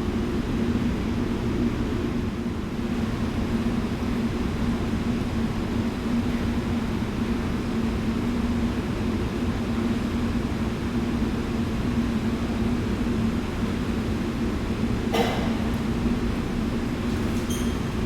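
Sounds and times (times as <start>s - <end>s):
low mechanical rumble: 11.0s - 18.0s.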